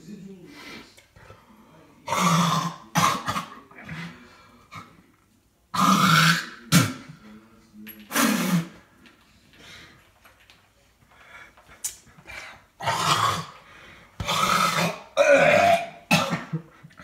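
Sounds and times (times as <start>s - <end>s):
person making harsh throat noises: 12.8s - 13.6s, 14.2s - 16.7s.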